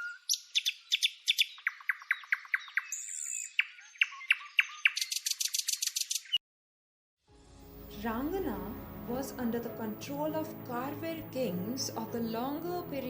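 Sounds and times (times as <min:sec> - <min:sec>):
bird chirping: 0:00.0 - 0:06.4.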